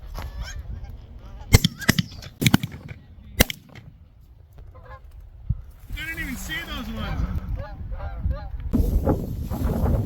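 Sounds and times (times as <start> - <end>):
shotgun blasts: 1.5 - 4.0
geese honking: 4.6 - 5.1.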